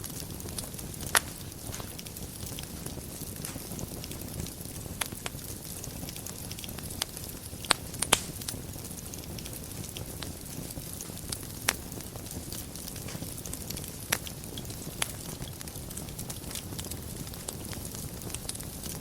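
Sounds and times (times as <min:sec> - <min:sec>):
fire crackling and popping: 0:00.0 - 0:19.0
fire rumbling and hissing: 0:00.0 - 0:19.0.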